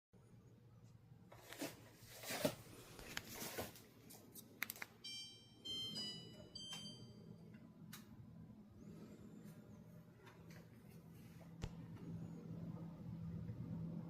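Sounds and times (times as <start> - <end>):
low steady unit hum: 0.2 - 14.0
clicks: 4.4 - 5.0
air conditioner power-on chime: 5.0 - 7.9.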